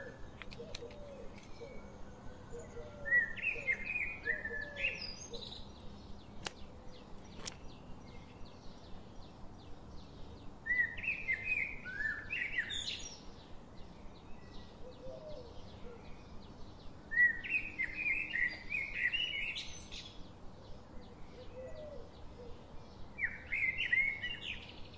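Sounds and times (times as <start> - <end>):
sharp clicks: 0.0 - 1.6, 6.4 - 7.8.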